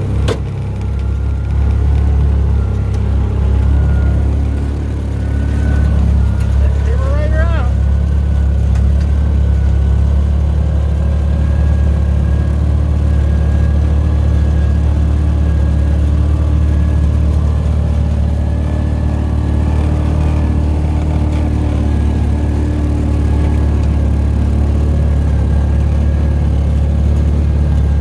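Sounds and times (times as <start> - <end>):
faint steady whine: 0.0 - 10.4
engine droning: 0.0 - 28.0.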